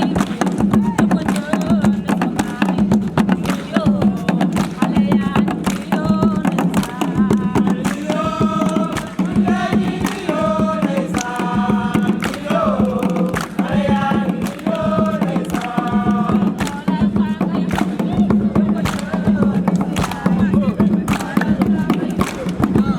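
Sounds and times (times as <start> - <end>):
fast percussion: 0.0 - 22.9
voices singing a chant: 0.0 - 22.9.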